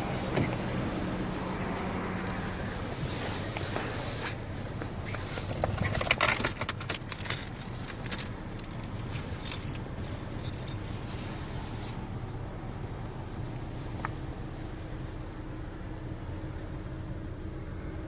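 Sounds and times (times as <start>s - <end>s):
metallic jingling and clicking: 5.6s - 10.9s.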